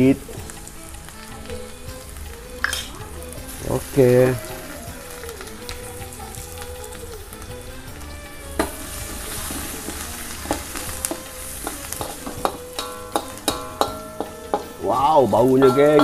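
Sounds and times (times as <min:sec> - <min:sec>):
paste sizzling in hot oil: 0:00.0 - 0:16.0
metal spatula scraping wok: 0:02.0 - 0:06.9, 0:08.4 - 0:16.0.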